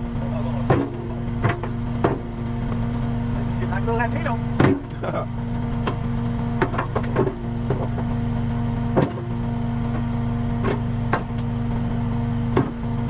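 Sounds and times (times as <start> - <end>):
engine humming: 0.0 - 13.0
sharp knocks and clanks: 0.7 - 2.3, 4.6 - 5.0, 6.6 - 8.2, 8.9 - 9.3, 12.5 - 12.9.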